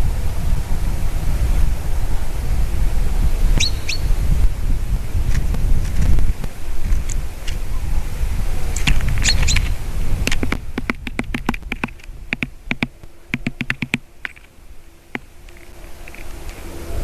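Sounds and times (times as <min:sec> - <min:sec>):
wind rumble on microphone: 0:00.0 - 0:17.0
high bird chirps: 0:03.6 - 0:04.1, 0:09.1 - 0:09.8
bird pecking at wood: 0:08.8 - 0:14.5.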